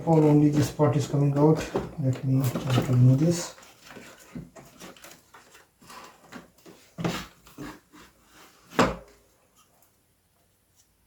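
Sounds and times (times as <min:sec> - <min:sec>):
plastic casing knocks and scrapes: 0:00.0 - 0:05.2.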